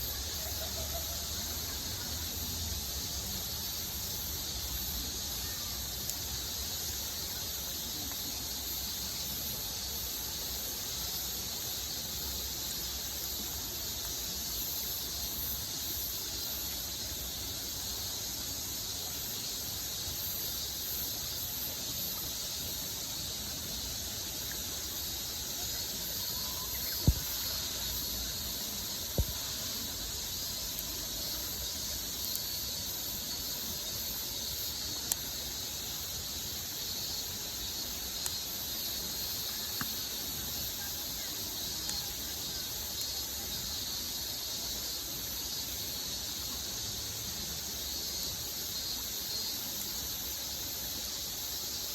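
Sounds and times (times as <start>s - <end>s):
outdoor ambience hiss: 0.0s - 51.9s
campfire pops: 26.4s - 29.9s, 35.0s - 35.3s, 39.5s - 40.1s.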